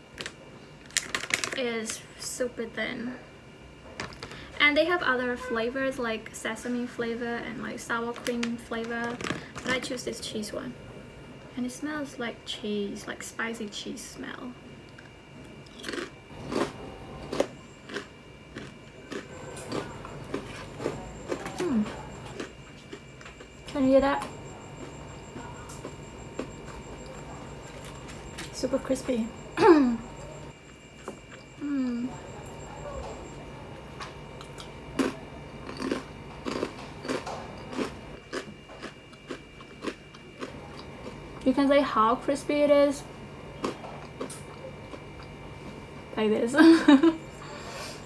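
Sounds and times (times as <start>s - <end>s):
crunching rice crackers: 0.1s - 2.0s, 14.9s - 28.6s, 34.0s - 41.5s, 43.5s - 45.8s.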